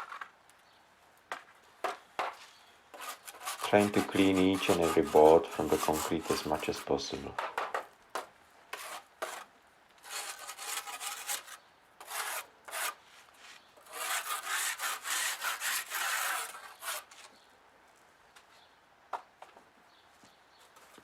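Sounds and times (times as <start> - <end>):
scraping concrete off wood: 1.3 - 17.4.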